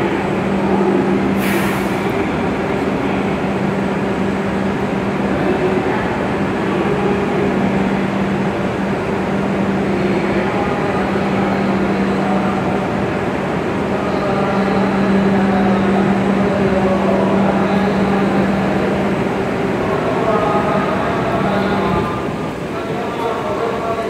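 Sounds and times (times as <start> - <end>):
train equipment humming: 0.0 - 24.0
air hiss: 1.4 - 2.1.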